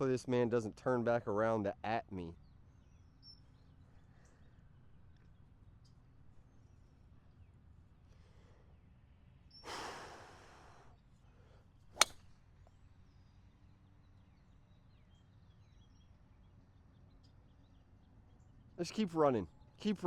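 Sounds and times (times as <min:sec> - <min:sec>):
golf club striking ball: 0:12.0 - 0:12.3.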